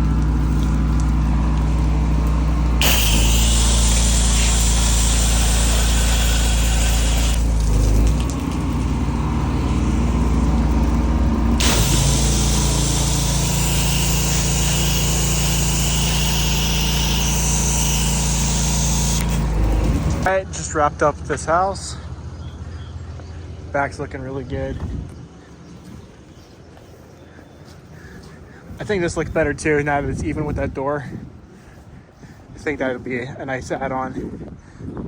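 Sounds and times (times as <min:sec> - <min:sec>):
water spray hissing: 0:00.0 - 0:20.3
pressure washer engine running: 0:00.0 - 0:20.4.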